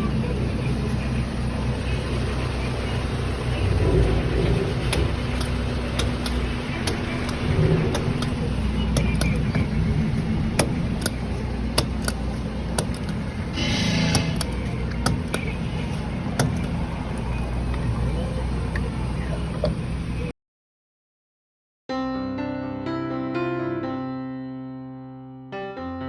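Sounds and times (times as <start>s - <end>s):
engine rumbling: 0.0s - 20.3s
sharp clicks: 3.5s - 17.3s.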